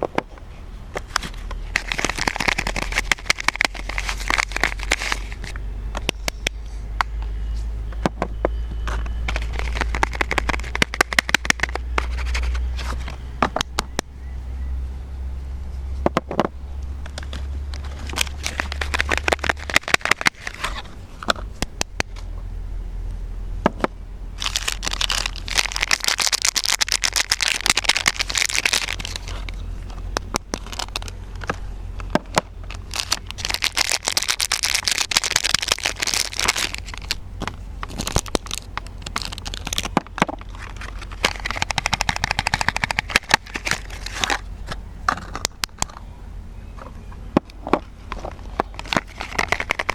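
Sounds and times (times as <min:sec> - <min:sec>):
rustling: 0:00.0 - 0:13.9, 0:15.7 - 0:22.3, 0:24.4 - 0:46.0, 0:46.8 - 0:49.9
low hum: 0:00.0 - 0:49.9
soap wrappers crinkling: 0:01.6 - 0:06.5, 0:09.0 - 0:13.1, 0:17.2 - 0:20.8, 0:24.4 - 0:31.5, 0:32.3 - 0:44.5, 0:48.1 - 0:49.9.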